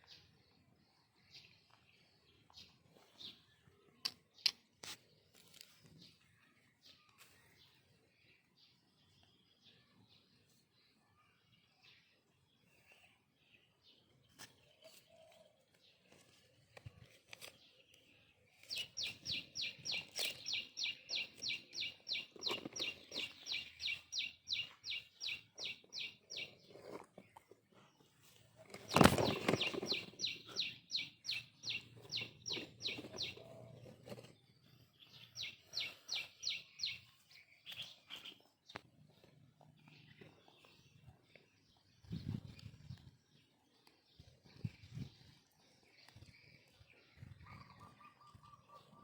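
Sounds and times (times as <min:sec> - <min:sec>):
bird chirping: 0:00.0 - 0:49.0.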